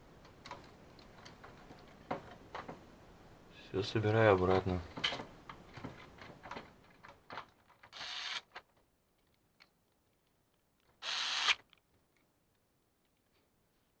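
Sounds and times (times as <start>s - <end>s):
electric screwdriver driving screws: 7.9s - 8.5s, 11.0s - 11.6s.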